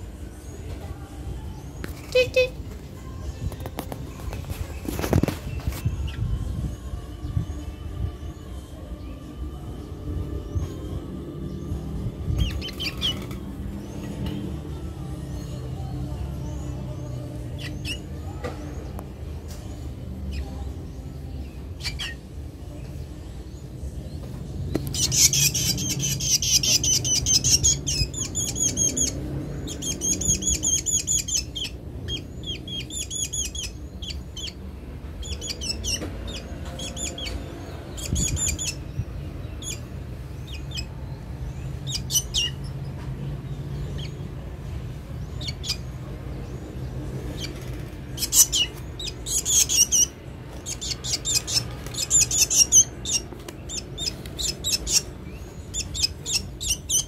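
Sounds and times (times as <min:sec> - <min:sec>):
bird chirping shrilly: 0:48.2 - 0:57.0.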